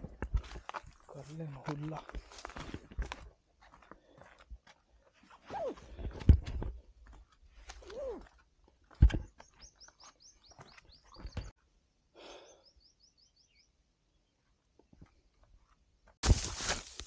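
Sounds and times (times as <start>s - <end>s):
footsteps on rock: 0.0s - 4.9s, 16.2s - 17.0s.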